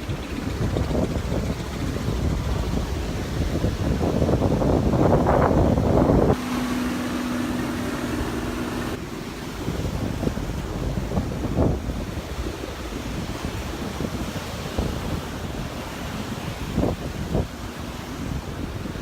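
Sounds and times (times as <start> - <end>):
steady low hum: 0.0 - 13.1
beach surf: 0.0 - 19.0
wind buffeting microphone: 0.0 - 19.0.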